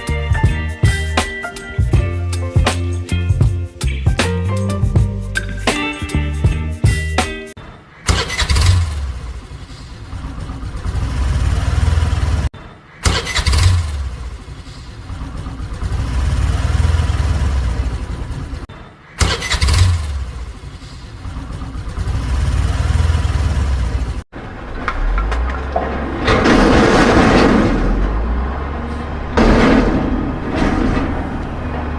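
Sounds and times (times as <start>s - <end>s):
music: 0.0s - 7.6s
vehicle engine starting and running: 8.0s - 31.9s.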